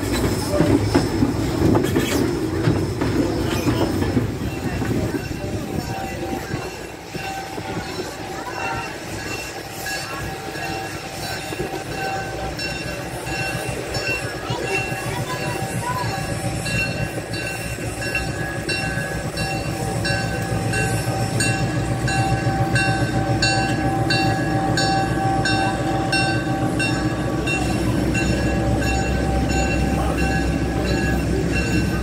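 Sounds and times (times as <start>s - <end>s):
diesel engine rumbling: 0.0s - 32.0s.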